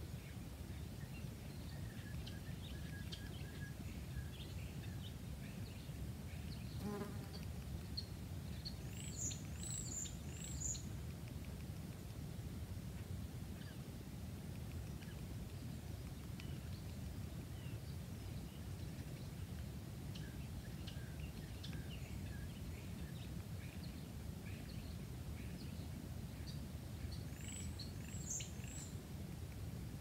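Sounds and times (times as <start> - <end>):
small birds chirping: 0.1 - 12.2, 13.0 - 29.2.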